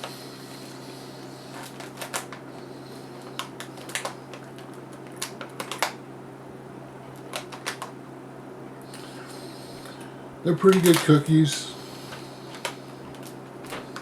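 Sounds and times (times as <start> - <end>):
steady low hum: 0.0 - 14.0
small sharp clicks and crackles: 1.5 - 6.0, 7.2 - 8.0, 10.6 - 11.2, 12.1 - 14.0.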